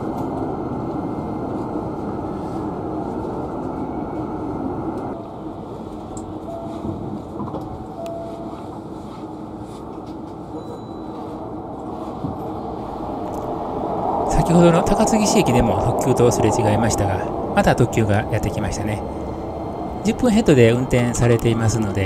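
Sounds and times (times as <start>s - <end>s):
train wheels rumbling: 11.0s - 22.0s.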